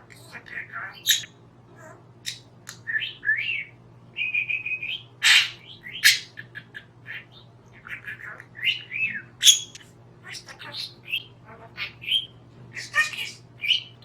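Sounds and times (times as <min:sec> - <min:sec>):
budgie chattering: 0:00.2 - 0:01.3, 0:05.2 - 0:14.0.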